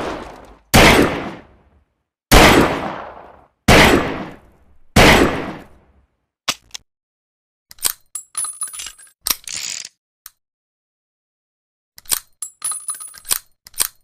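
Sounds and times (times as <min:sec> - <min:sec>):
revolver gunshots with echo: 0:00.0 - 0:01.6, 0:02.3 - 0:05.8.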